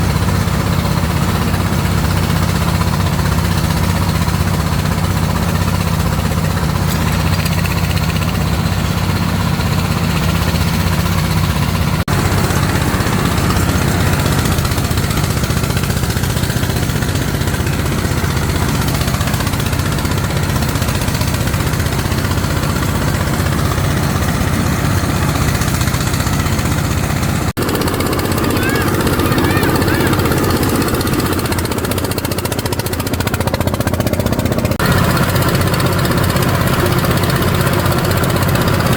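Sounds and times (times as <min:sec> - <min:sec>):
small engine humming: 0:00.0 - 0:38.9.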